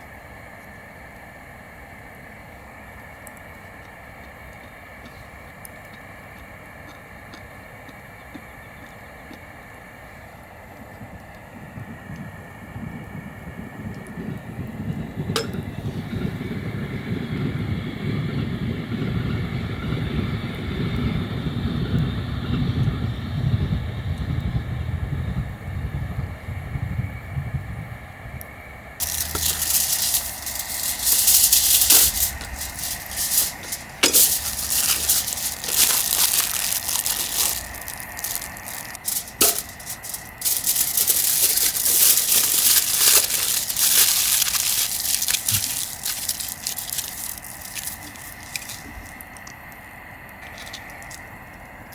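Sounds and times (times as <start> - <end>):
campfire crackling and popping: 29.0 - 49.5.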